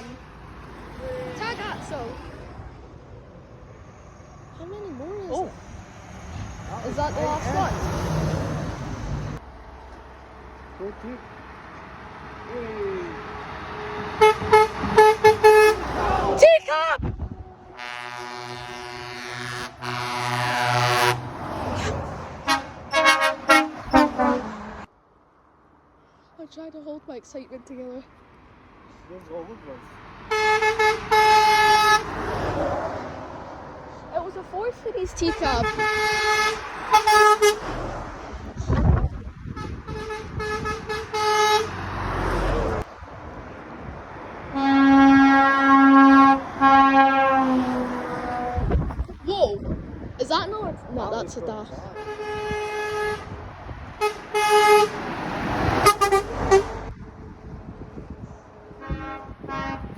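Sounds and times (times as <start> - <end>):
vehicle passing: 0.0 - 59.9
lorry air horn blasts: 13.9 - 15.9, 17.8 - 21.3, 22.4 - 24.6, 30.3 - 32.1, 35.5 - 37.6, 39.6 - 41.7, 44.5 - 48.7, 52.0 - 53.3, 54.0 - 55.0, 55.8 - 56.8, 58.8 - 59.9.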